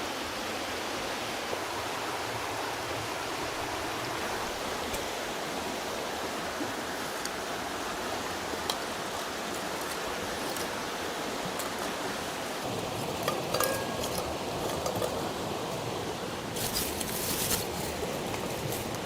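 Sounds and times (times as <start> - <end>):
running water rushing: 0.0 - 19.0
small clicks and clinks: 13.2 - 15.2.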